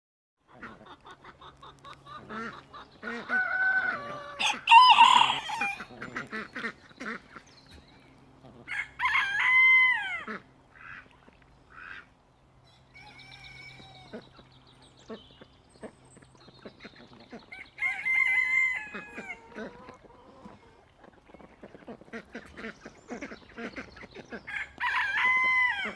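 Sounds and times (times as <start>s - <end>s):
rooster crowing: 3.3s - 5.9s, 8.7s - 10.3s, 17.7s - 19.4s, 24.5s - 25.9s
soft short rooster calls: 3.3s - 5.9s.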